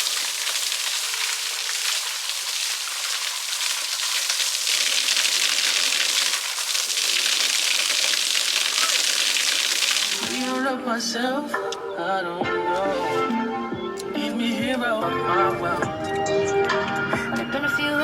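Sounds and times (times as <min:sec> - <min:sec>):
spring water pouring and splashing: 0:00.0 - 0:10.6.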